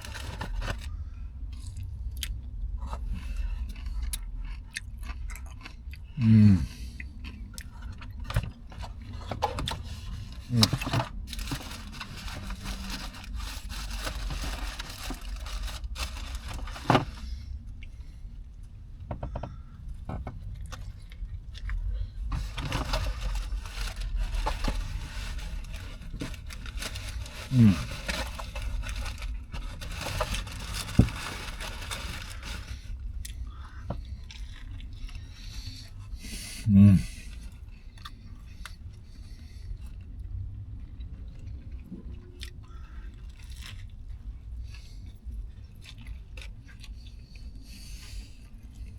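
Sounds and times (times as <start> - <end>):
paper wrapper rustling: 0.0 - 0.9, 9.7 - 17.2, 22.2 - 33.0
chewing and crunching sandwich: 0.0 - 48.9.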